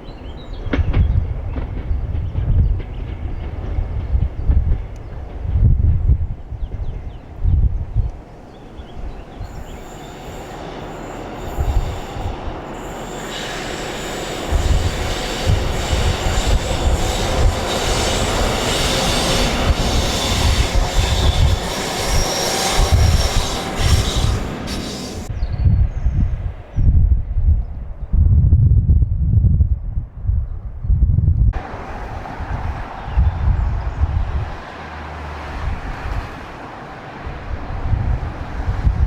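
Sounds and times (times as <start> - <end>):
train passing: 0.0 - 25.5, 31.6 - 39.0
high-pitched wheel squeal: 9.4 - 25.3.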